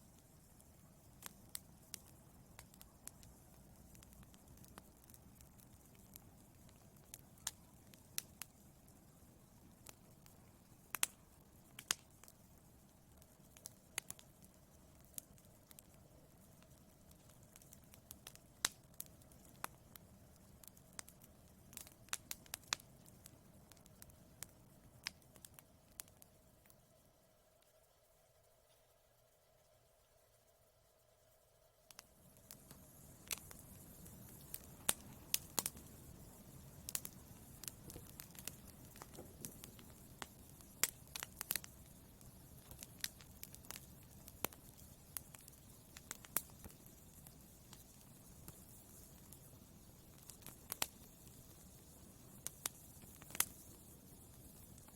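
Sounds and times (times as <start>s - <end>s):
low rumble of flames: 0.0s - 26.8s, 31.9s - 54.9s
wood fire crackling: 0.0s - 30.1s, 31.8s - 54.9s
low rush of burning: 31.9s - 54.9s.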